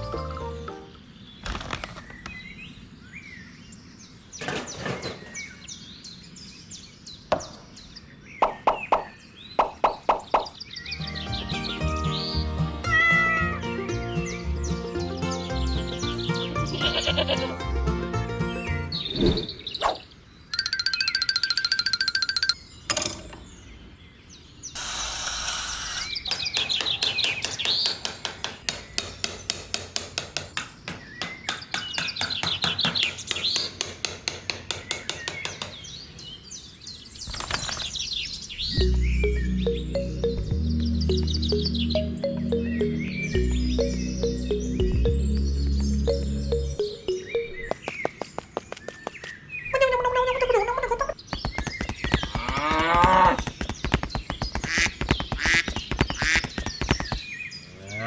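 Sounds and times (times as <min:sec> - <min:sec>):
small birds chirping: 0:00.0 - 0:58.0
short rush of noise: 0:19.0 - 0:19.8
small hammer tapping on wood: 0:26.3 - 0:35.9.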